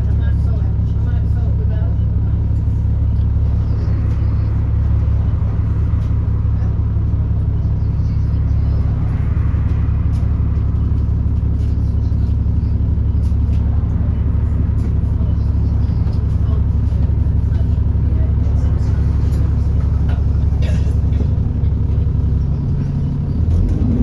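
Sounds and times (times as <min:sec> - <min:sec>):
bus engine rumbling: 0:00.0 - 0:24.0.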